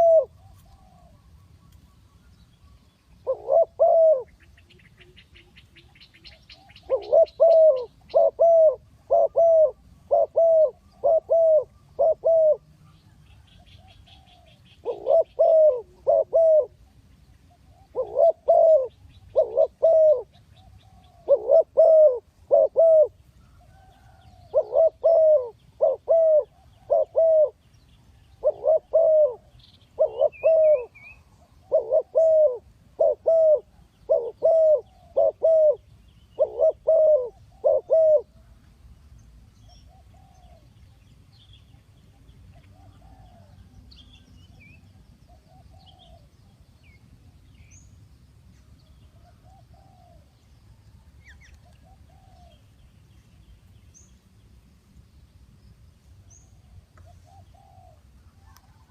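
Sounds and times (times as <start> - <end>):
dove cooing: 0.0 - 1.5, 3.2 - 27.6, 28.3 - 38.5, 39.7 - 40.7, 42.5 - 43.8, 45.3 - 46.4, 49.1 - 50.4, 51.4 - 52.6, 56.6 - 58.9
small birds chirping: 0.0 - 9.4.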